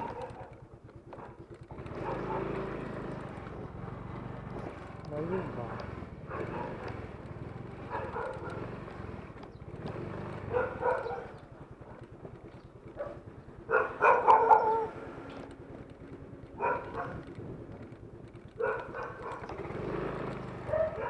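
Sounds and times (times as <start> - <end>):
dog barking: 0.0 - 0.6, 2.0 - 2.6, 5.7 - 7.1, 7.8 - 8.7, 10.5 - 11.4, 13.0 - 15.1, 16.5 - 17.3, 18.6 - 19.5, 20.7 - 21.0
small engine idling: 0.0 - 21.0.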